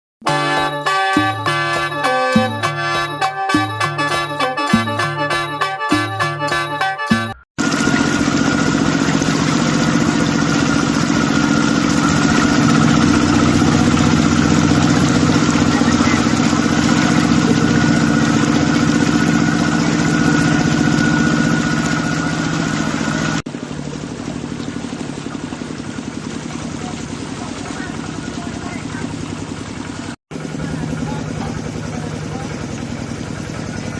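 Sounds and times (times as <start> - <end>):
engine running: 0.3 - 33.9
constant whine: 7.6 - 33.9.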